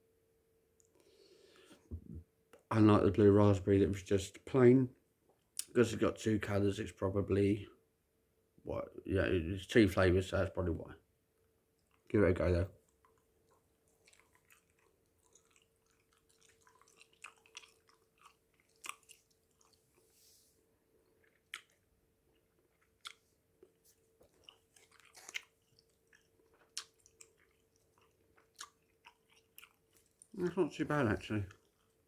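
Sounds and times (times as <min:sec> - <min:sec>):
faint steady hum: 0:00.0 - 0:32.0
gum chewing wet clicks: 0:12.8 - 0:20.0, 0:21.2 - 0:30.5.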